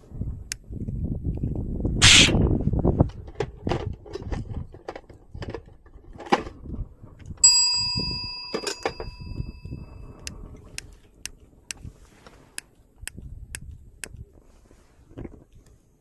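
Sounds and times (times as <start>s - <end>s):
handling clicks and knocks: 3.0s - 9.5s
metal object ringing like a bell: 7.4s - 10.0s.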